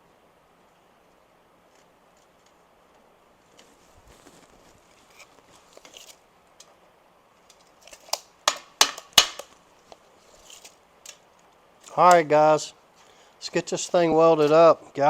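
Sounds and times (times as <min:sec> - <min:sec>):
faint shuffling: 0:01.0 - 0:06.2.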